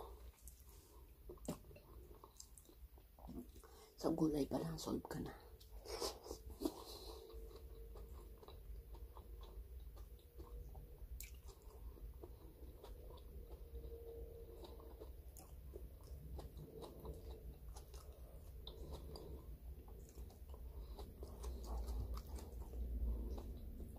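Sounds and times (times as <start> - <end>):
person chewing food: 0.0 - 3.8, 5.6 - 23.9.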